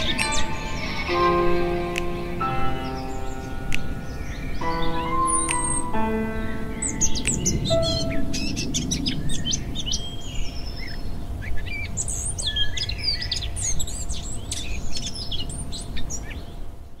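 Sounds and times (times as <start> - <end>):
songbirds chirping and singing: 0.0 - 16.8.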